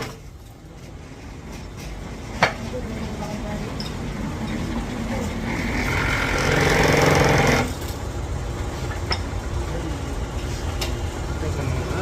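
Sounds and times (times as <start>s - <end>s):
pneumatic tool hammering: 5.8s - 7.9s.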